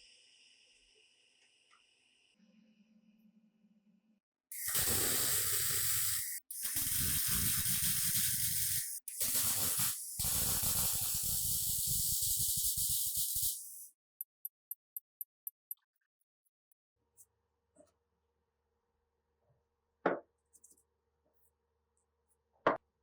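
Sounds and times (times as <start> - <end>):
pressurized spray hissing: 4.5 - 13.9.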